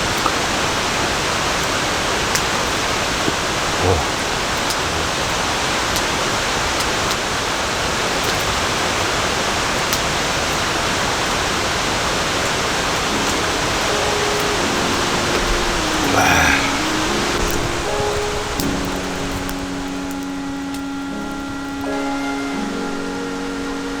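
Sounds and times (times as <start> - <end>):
steady rain in a forest: 0.0 - 24.0
soft music notes: 12.3 - 24.0.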